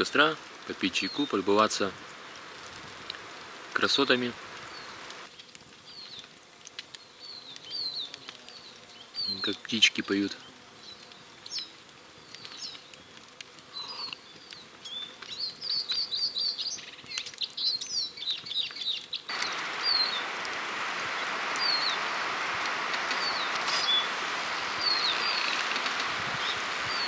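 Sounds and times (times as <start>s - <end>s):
songbirds chirping and trilling: 0.9s - 1.6s, 3.5s - 5.3s, 7.0s - 27.0s
steady rushing noise: 19.3s - 27.0s.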